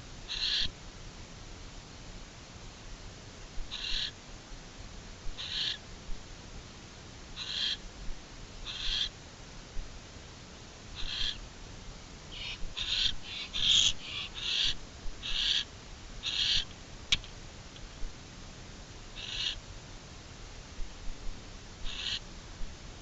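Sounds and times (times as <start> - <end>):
owls hissing calls: 0.3 - 0.7, 3.7 - 4.2, 5.4 - 5.8, 7.4 - 7.8, 8.6 - 9.1, 11.0 - 11.4, 12.3 - 16.7, 19.2 - 19.6, 21.8 - 22.2
sharp click: 17.1 - 17.9.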